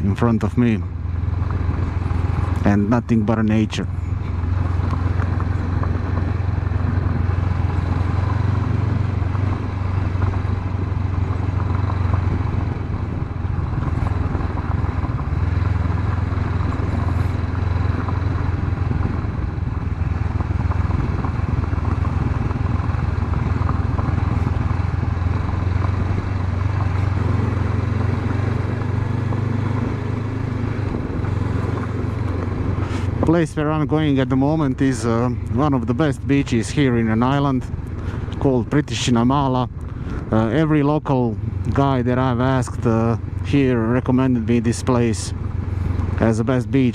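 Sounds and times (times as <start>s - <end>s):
motorcycle engine running: 0.0s - 46.9s
road noise: 0.0s - 46.9s.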